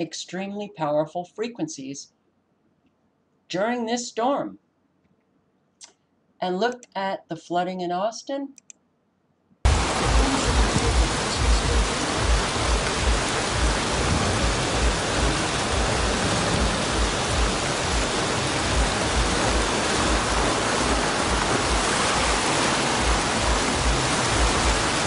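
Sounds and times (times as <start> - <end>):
heavy rain: 9.7 - 25.0
low buffeting thumps: 9.7 - 25.0
rushing floodwater: 9.7 - 25.0.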